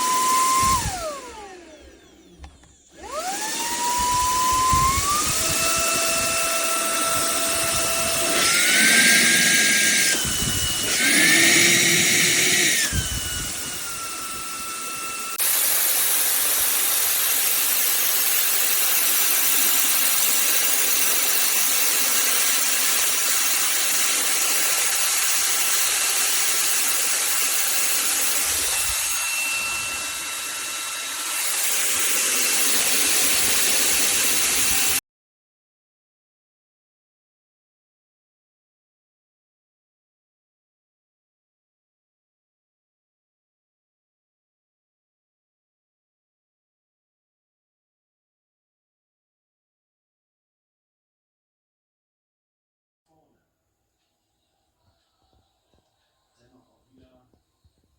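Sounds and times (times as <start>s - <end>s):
handheld vacuum cleaner running: 0.0s - 35.0s.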